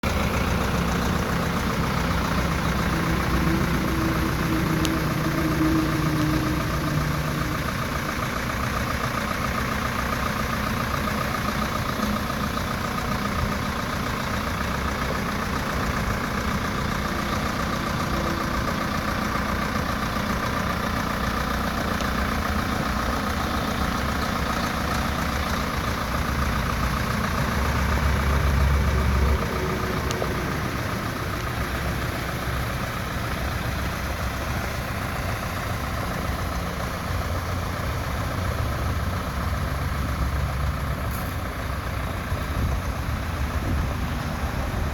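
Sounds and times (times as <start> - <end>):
tractor engine running: 0.0 - 44.9.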